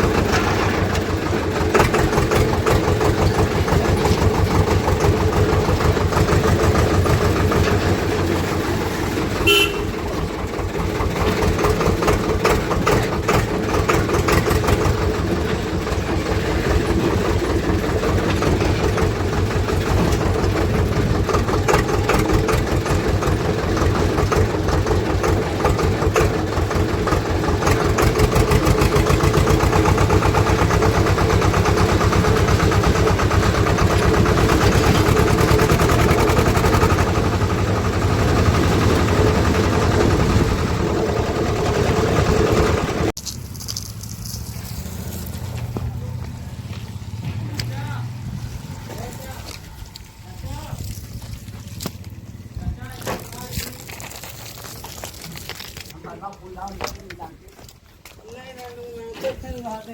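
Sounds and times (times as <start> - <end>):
tractor diesel engine running: 0.0 - 59.9
short horn toot: 9.4 - 10.1.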